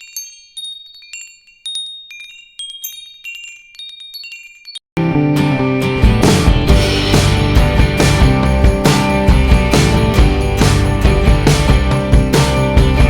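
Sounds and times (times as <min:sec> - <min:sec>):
wind chimes tinkling: 0:00.0 - 0:05.0
loud music with guitar and drums: 0:05.0 - 0:13.0.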